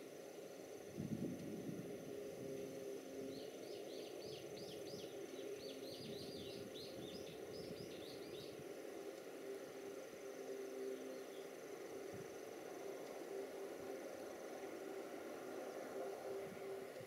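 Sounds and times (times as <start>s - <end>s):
small bird chirping: 3.4s - 8.6s.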